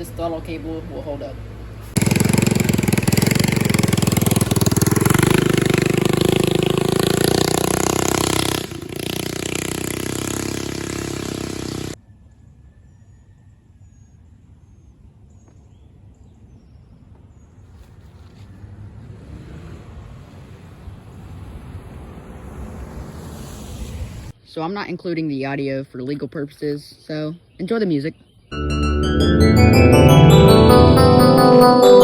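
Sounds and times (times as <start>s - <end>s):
mini bike engine revving: 1.9s - 12.0s, 18.7s - 21.0s.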